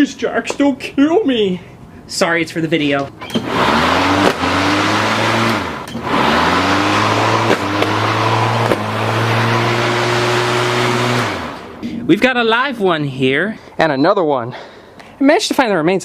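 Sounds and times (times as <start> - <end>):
lawnmower engine under load: 3.2 - 11.8.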